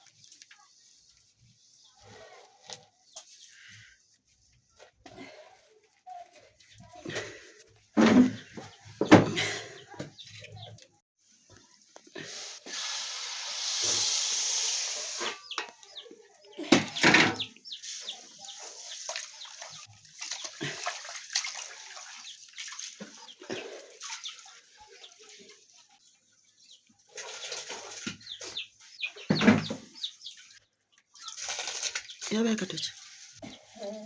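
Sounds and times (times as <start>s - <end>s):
chickens clucking: 8.0s - 11.0s, 14.9s - 20.5s, 26.6s - 31.6s
water pouring: 12.3s - 15.4s, 17.8s - 26.0s, 31.1s - 33.4s.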